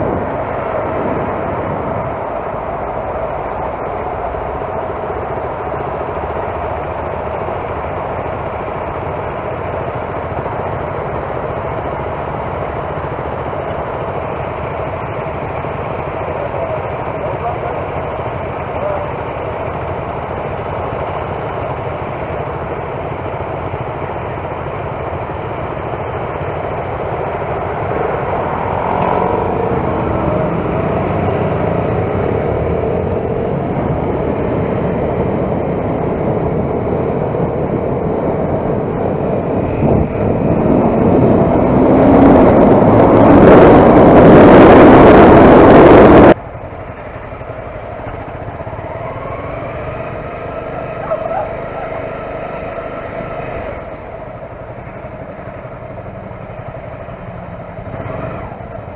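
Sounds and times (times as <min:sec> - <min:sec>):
heavy wind noise: 0:00.0 - 0:04.3, 0:26.4 - 0:46.4
motorcycle engine running: 0:00.0 - 0:58.9.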